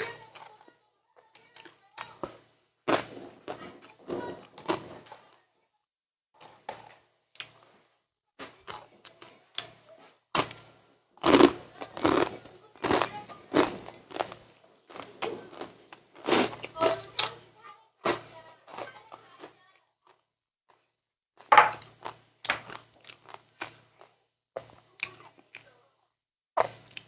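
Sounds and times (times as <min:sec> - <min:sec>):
chewing: 0:11.2 - 0:17.4, 0:21.8 - 0:25.8.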